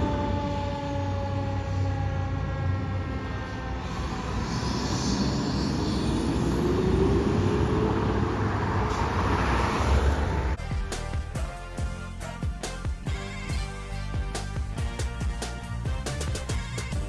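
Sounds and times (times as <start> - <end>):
fire truck siren wailing: 0.0 - 10.6
heavy engine and road noise: 0.0 - 11.8.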